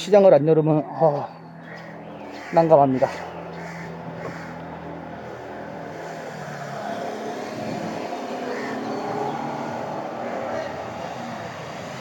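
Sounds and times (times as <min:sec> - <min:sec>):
distant engine droning: 0:00.0 - 0:12.0.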